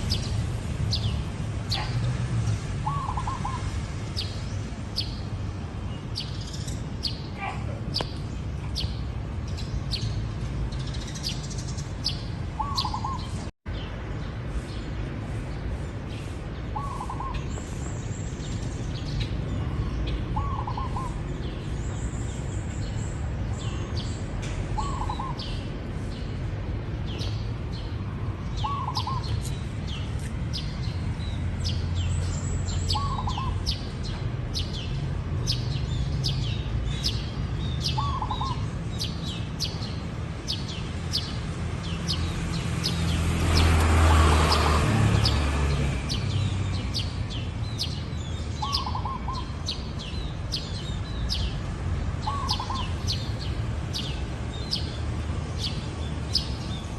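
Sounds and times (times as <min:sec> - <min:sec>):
small birds chirping: 0:00.0 - 0:56.9
dove cooing: 0:52.2 - 0:52.9.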